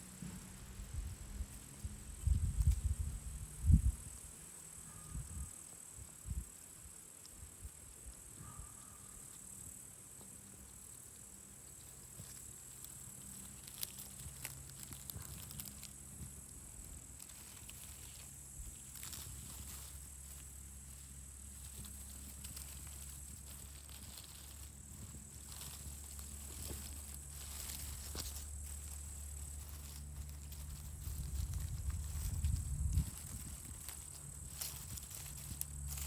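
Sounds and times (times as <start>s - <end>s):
insects trilling: 0.0s - 36.0s
soft rustles and clicks: 10.1s - 36.0s.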